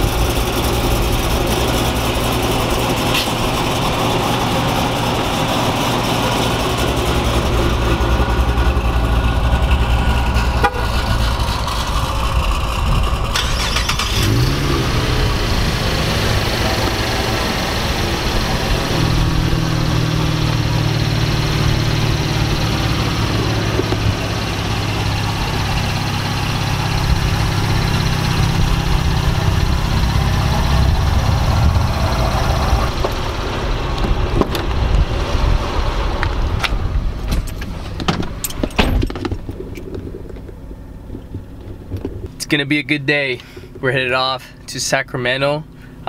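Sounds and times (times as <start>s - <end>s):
car engine idling: 0.0s - 46.0s
sharp clicks and knocks: 36.3s - 42.4s.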